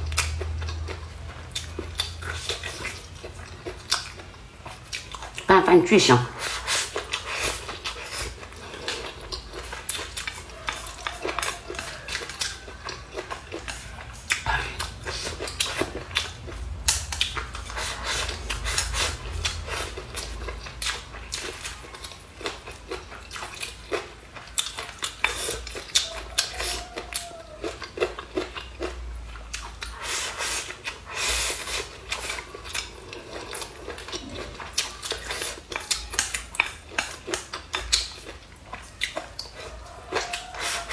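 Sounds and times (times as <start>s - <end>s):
chewing: 0.0s - 5.5s, 6.4s - 40.9s.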